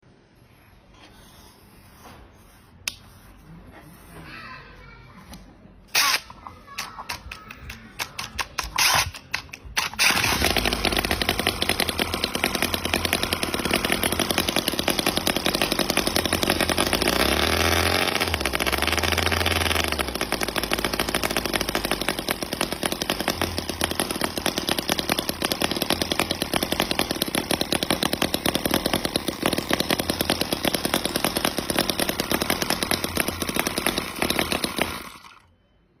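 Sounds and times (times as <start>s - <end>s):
miniature engine running: 7.1s - 35.5s.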